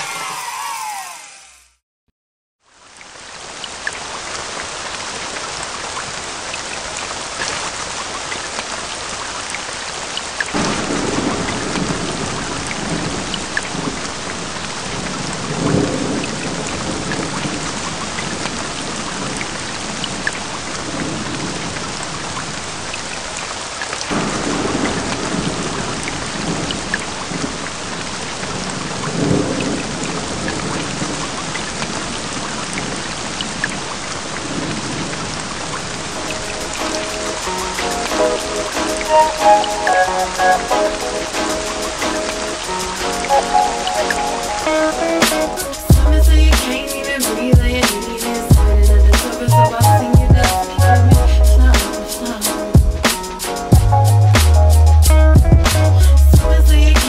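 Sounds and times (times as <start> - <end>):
heavy rain: 2.6 - 57.0
rolling thunder: 10.6 - 22.2, 24.1 - 33.6.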